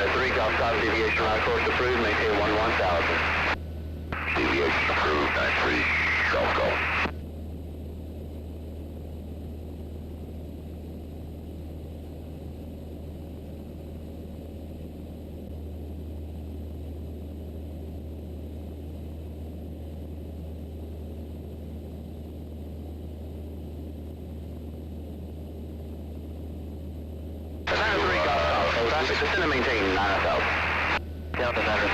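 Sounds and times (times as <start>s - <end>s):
airplane engine droning: 0.0s - 31.9s.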